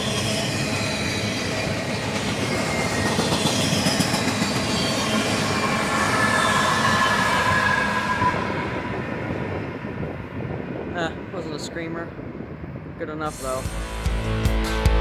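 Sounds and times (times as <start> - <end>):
train wheels rumbling on rails: 0.0 - 14.3.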